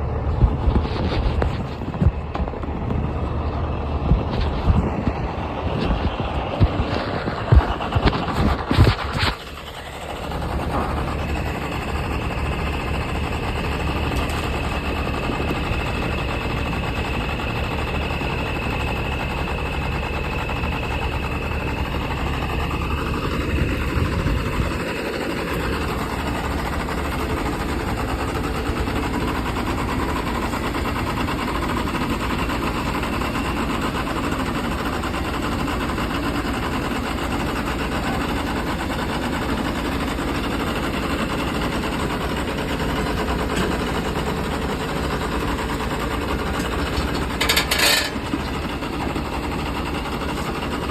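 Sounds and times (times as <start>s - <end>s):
high whine: 0.0s - 29.7s
tractor engine running: 0.0s - 50.9s.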